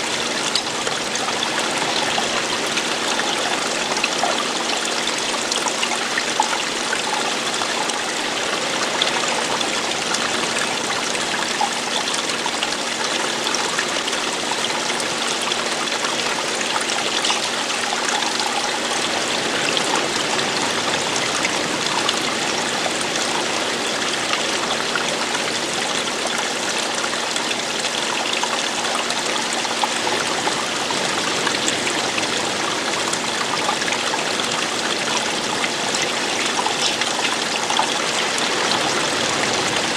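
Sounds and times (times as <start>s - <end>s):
water falling and splashing: 0.0s - 39.9s.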